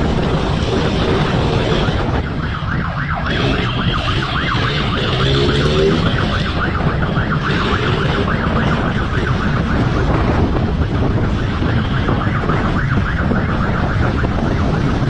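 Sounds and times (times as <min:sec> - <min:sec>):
engine noise: 0:00.0 - 0:13.0
loud wind: 0:00.0 - 0:15.0
police siren warbling: 0:00.0 - 0:15.0.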